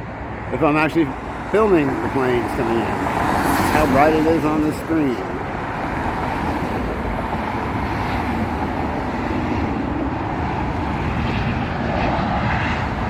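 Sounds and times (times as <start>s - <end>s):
jet airliner engine: 0.0s - 13.0s
street traffic: 0.0s - 13.0s.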